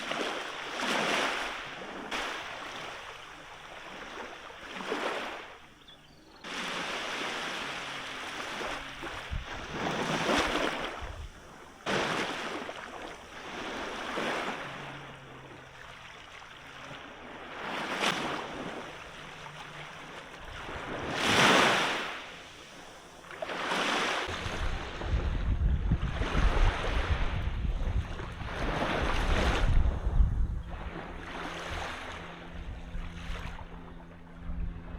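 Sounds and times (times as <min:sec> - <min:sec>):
water surging like waves: 0:00.0 - 0:05.7, 0:06.4 - 0:34.9
wind buffeting microphone: 0:08.7 - 0:11.6, 0:24.3 - 0:34.9.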